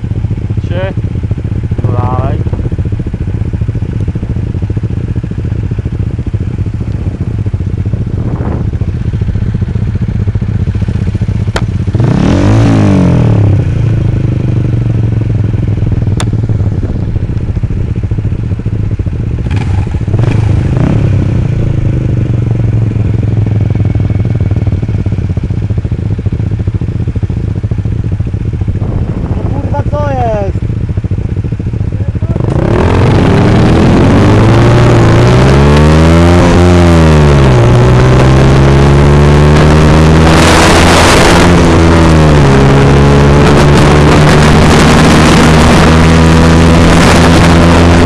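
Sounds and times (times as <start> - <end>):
motorcycle engines idling: 0.0 - 12.1, 13.0 - 35.3.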